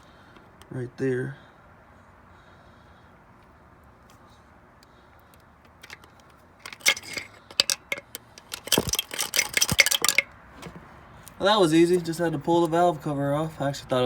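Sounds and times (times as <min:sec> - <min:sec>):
metal parts clicking and clinking: 0:05.7 - 0:10.7.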